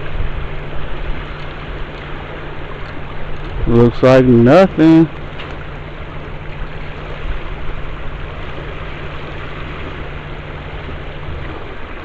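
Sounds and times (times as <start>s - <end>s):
constant rushing noise: 0.0s - 12.0s
low motor hum: 0.0s - 12.0s.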